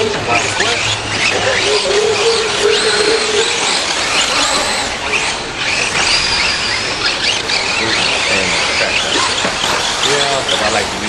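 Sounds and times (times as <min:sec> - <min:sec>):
rc trucks whining: 0:00.0 - 0:11.0.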